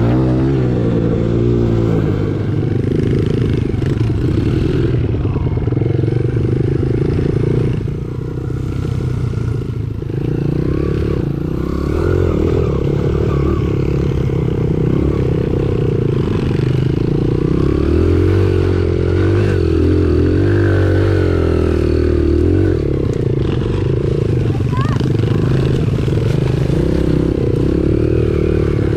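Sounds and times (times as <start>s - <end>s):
dirt bike engine revving: 0.0s - 28.9s.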